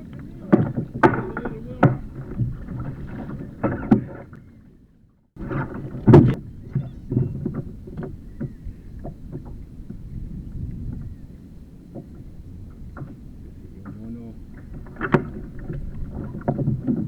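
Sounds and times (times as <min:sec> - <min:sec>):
water splashing against kayak: 0:00.0 - 0:17.0
knocks on the hull: 0:00.4 - 0:04.2.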